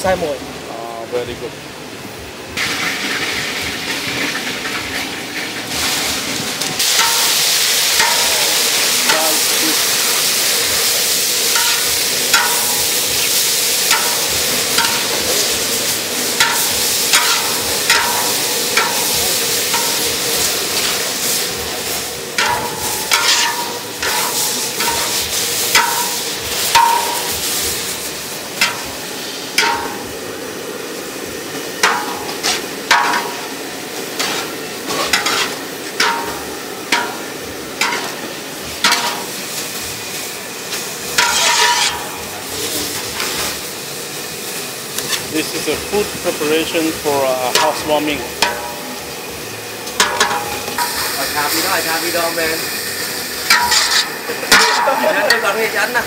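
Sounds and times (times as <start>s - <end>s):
food sizzling in a pan: 2.1s - 56.0s
metal utensil scraping a pan: 6.8s - 10.0s, 10.8s - 29.0s, 31.8s - 33.5s, 34.2s - 38.2s, 38.8s - 39.4s, 41.1s - 42.2s, 45.0s - 45.3s, 53.5s - 55.6s.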